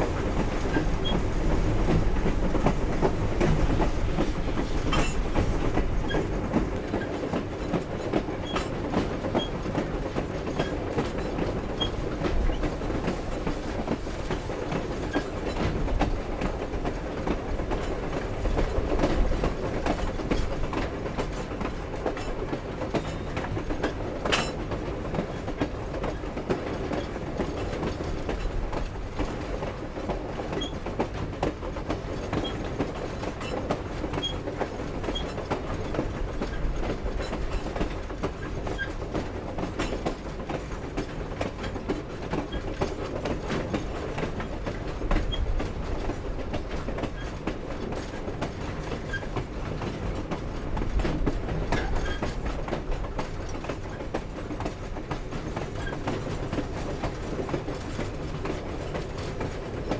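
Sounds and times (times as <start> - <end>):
train cars rumbling: 0.0 - 59.9
wheels clicking over rails: 0.2 - 14.0.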